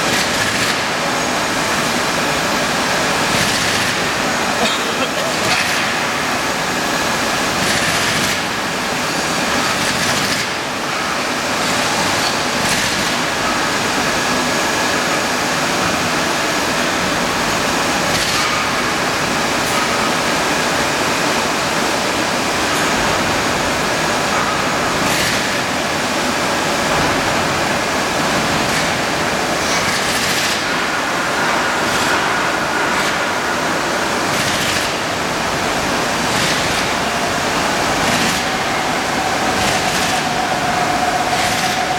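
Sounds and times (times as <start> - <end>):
machine rushing hiss: 22.7 - 41.9.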